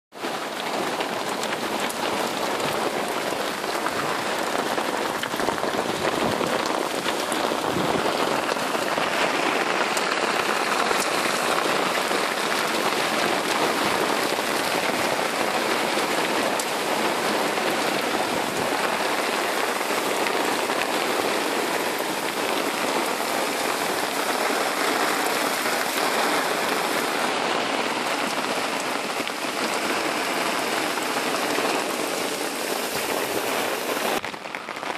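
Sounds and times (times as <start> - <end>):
steady rain hiss: 0.2 - 34.9.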